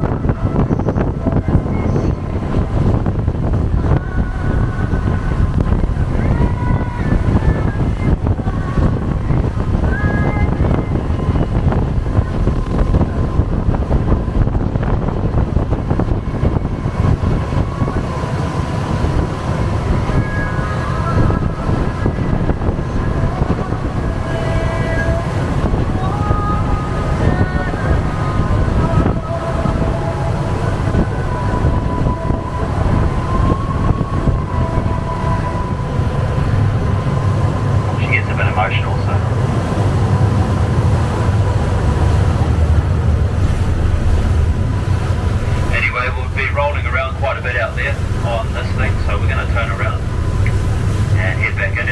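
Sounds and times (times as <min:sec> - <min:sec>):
boat engine rumble: 0:00.0 - 0:51.9
wind buffeting microphone: 0:00.0 - 0:51.9.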